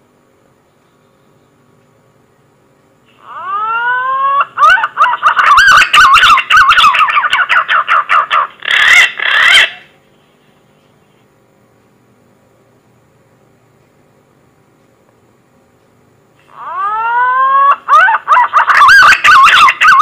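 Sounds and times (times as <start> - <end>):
pigeon whistling song: 3.3 - 8.0, 16.6 - 20.0.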